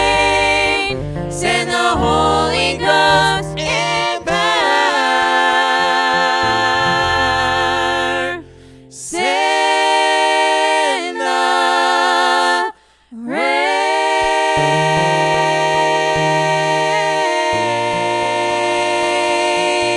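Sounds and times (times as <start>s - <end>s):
low bass note: 0.0s - 4.6s
voices singing long held notes: 0.0s - 19.9s.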